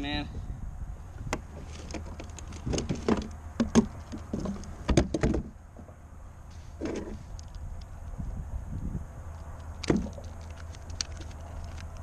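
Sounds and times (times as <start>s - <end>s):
fishing tackle clicking and knocking: 9.4s - 12.0s.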